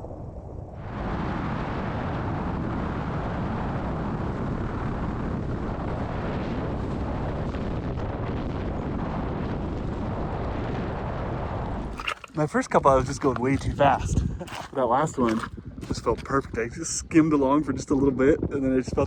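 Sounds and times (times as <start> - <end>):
light aircraft engine and airflow: 0.9 - 11.7.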